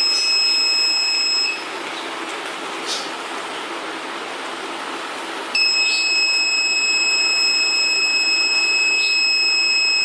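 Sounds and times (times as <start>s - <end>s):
high-pitched electronic buzzer tone: 0.0s - 1.6s, 5.6s - 10.0s.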